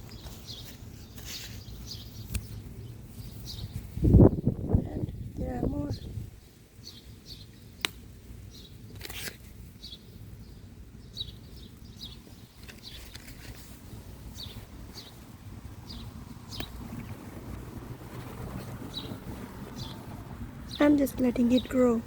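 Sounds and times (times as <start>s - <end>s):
small birds chirping: 0.0s - 22.0s
brief rustle: 8.9s - 9.5s, 12.6s - 13.8s.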